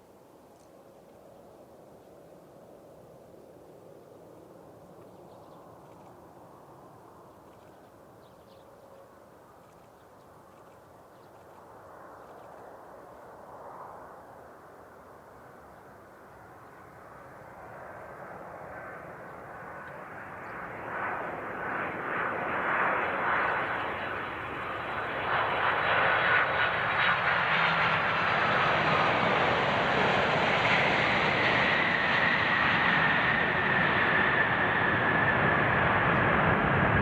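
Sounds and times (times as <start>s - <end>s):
jet airliner engines passing overhead: 0.0s - 37.0s.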